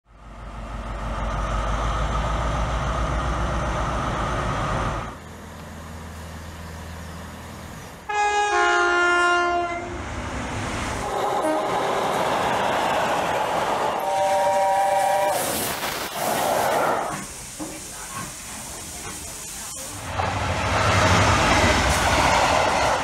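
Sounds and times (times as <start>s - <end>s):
diesel train engine rumbling: 0.0s - 23.0s
train passing: 0.1s - 23.0s
two-tone train horn: 8.1s - 10.0s, 11.0s - 11.9s, 13.9s - 15.5s.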